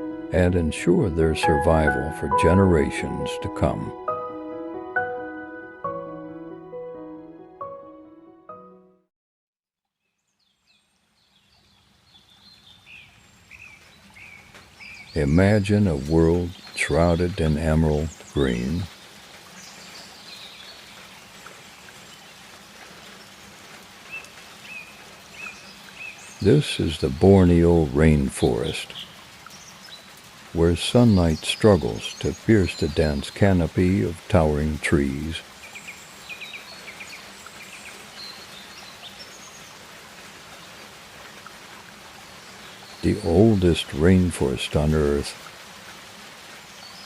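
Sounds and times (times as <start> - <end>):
steady rainforest hiss: 10.4 - 47.0.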